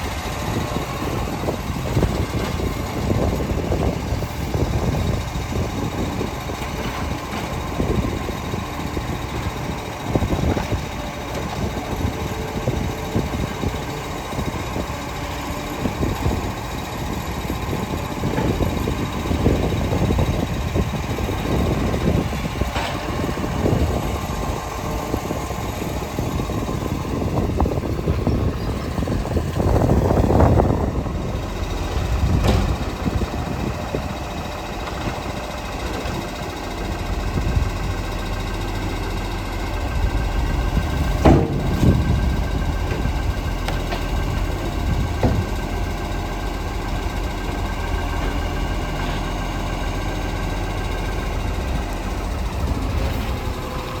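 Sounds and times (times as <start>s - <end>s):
garbage truck engine running: 0.0s - 54.0s
sharp knocks: 41.2s - 42.2s.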